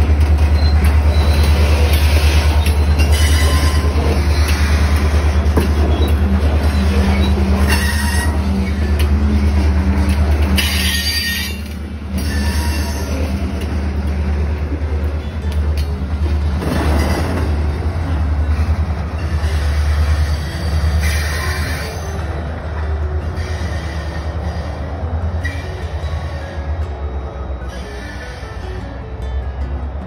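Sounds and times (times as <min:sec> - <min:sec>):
train wheels rumbling on rails: 0:00.0 - 0:30.0
high-pitched wheel squeals: 0:05.8 - 0:08.9, 0:10.6 - 0:13.2.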